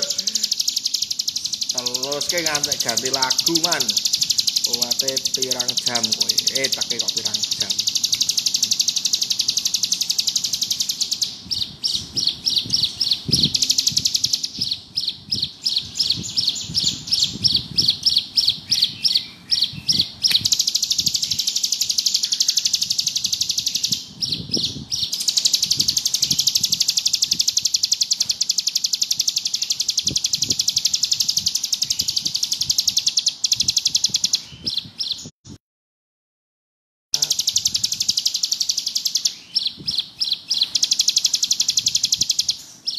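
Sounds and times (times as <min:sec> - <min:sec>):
bird singing high buzzing trill: 0:00.0 - 0:35.3, 0:37.2 - 0:42.9.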